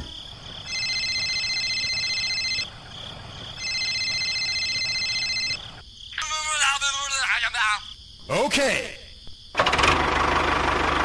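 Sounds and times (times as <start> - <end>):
electronic trilling ring tone: 0.6 - 2.7, 3.6 - 5.7.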